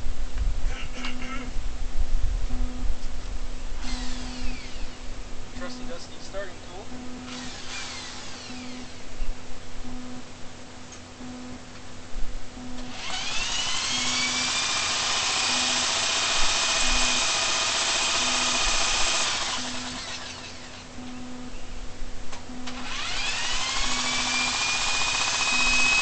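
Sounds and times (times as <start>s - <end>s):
engine spinning up whine: 2.5s - 10.4s, 11.1s - 21.7s, 22.3s - 26.0s
power drill cranking engine: 3.8s - 5.0s, 7.3s - 9.0s, 12.8s - 20.8s, 22.6s - 26.0s.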